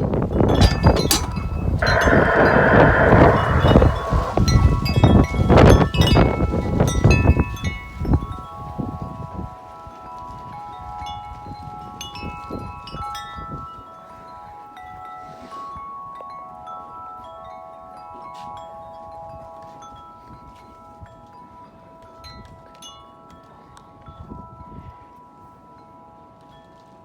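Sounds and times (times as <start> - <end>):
wind rumbling on microphone: 0.0 - 9.6.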